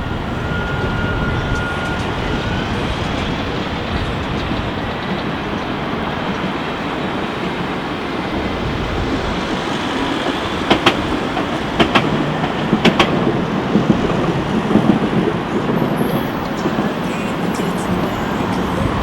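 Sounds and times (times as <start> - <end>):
tram rumbling on rails: 0.0 - 19.0
wheels clicking over rail joints: 3.9 - 19.0.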